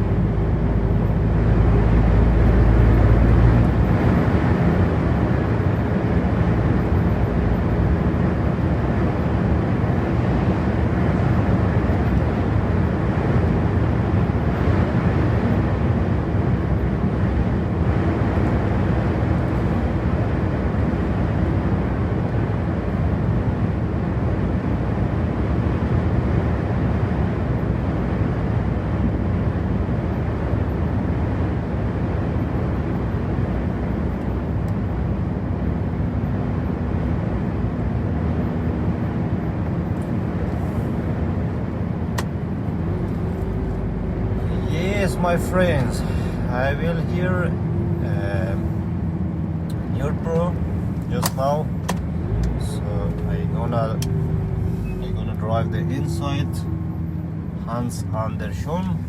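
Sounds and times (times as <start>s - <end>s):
truck engine rumble: 0.0s - 59.0s
tyre and road noise: 0.0s - 59.0s.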